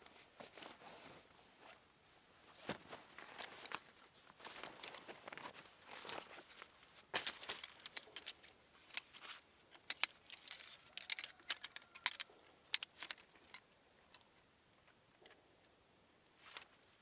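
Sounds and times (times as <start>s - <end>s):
small objects clicking and tapping: 9.8s - 13.6s.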